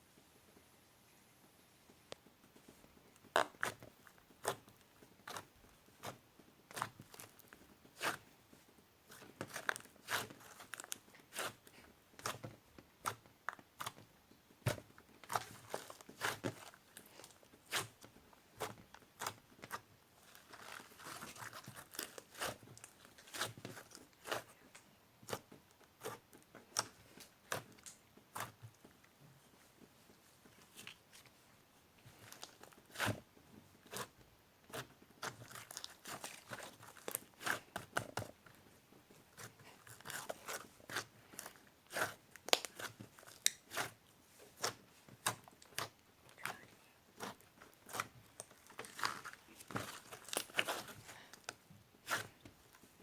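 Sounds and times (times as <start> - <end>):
crinkling rustles: 35.2 - 53.0.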